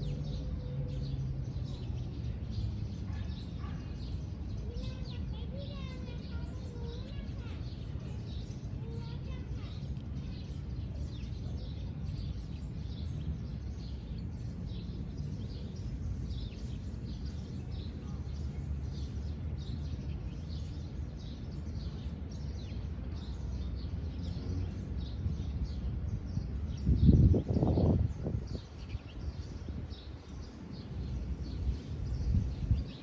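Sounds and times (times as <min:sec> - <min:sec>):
small birds chirping: 0:00.0 - 0:33.0
wind on microphone: 0:25.1 - 0:33.0.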